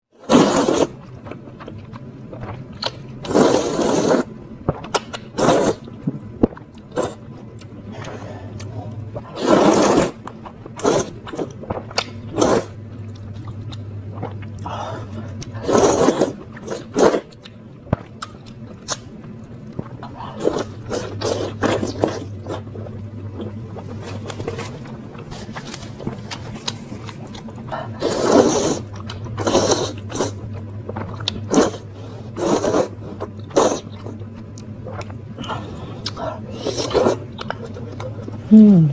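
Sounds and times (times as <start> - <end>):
low steady hum: 0.1 - 38.9
noodle slurping: 0.2 - 1.0, 3.2 - 4.3, 5.4 - 5.8, 9.3 - 10.2, 10.8 - 12.8, 15.5 - 17.3, 20.4 - 22.9, 27.9 - 30.4, 31.5 - 34.2, 35.4 - 38.4
chewing: 15.3 - 31.9, 32.5 - 38.4.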